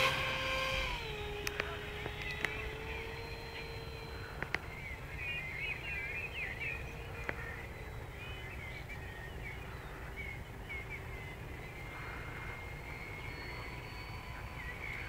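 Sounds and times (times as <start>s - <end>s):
sharp clicks: 0.0s - 4.8s
faint electric motor hum: 0.0s - 15.0s
low wind rumble: 0.0s - 15.0s
small birds chirping: 0.0s - 15.0s.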